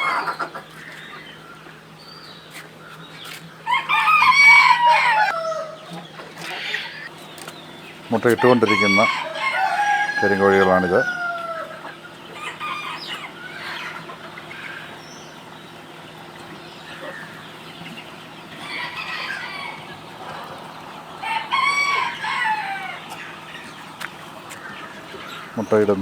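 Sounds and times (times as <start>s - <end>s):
chickens clucking: 0.0s - 26.0s
rooster crowing: 3.6s - 6.0s, 8.3s - 14.0s, 18.6s - 20.5s, 21.2s - 23.3s.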